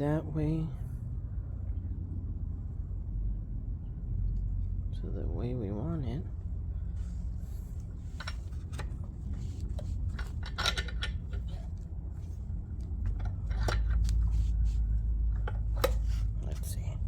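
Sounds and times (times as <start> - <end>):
steady low rumble: 0.0 - 17.0
metal parts clinking: 8.1 - 11.8, 13.1 - 14.3.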